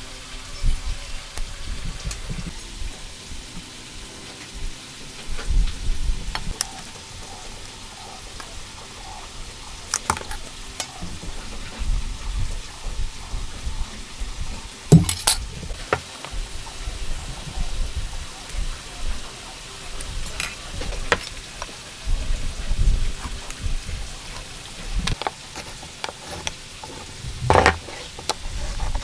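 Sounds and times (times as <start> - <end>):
hand tools scraping wood: 24.2 - 29.0.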